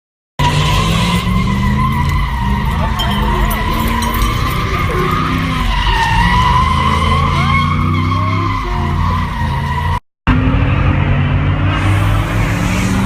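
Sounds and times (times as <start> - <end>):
car tires squealing: 0.4 - 10.0
car engine: 0.4 - 13.0.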